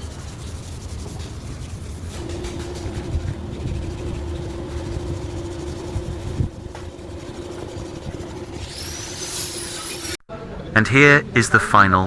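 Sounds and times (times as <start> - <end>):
machine humming: 2.1 - 10.2.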